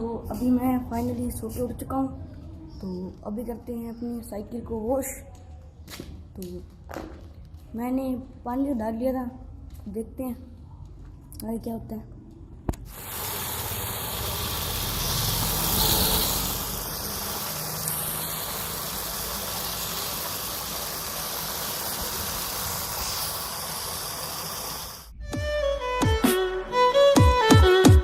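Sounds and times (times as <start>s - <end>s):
water jet spraying: 12.9s - 25.1s.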